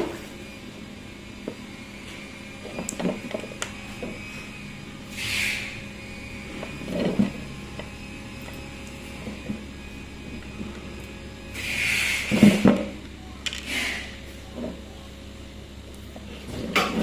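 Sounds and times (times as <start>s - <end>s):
steady low hum: 0.0s - 17.0s
objects being handled: 2.6s - 4.2s, 6.5s - 9.7s, 12.3s - 14.9s.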